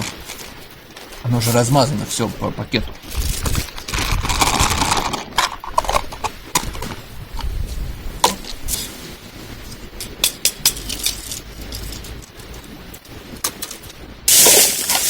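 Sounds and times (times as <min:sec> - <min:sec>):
plastic bag crinkling: 0:03.0 - 0:06.9, 0:14.3 - 0:15.0.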